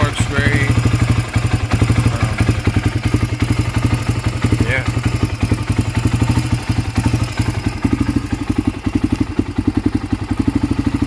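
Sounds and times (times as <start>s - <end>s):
quad engine idling: 0.0s - 11.0s.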